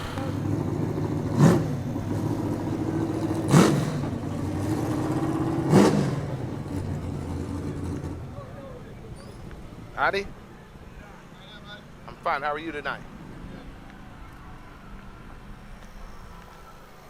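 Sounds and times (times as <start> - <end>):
car engine idling: 0.0 - 17.0
engine revving blips: 0.0 - 17.0.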